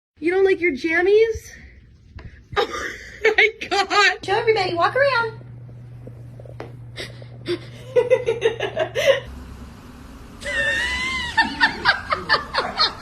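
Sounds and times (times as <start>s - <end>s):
background hum: 0.2s - 13.0s
person laughing: 2.6s - 3.8s, 7.0s - 9.3s, 10.4s - 13.0s.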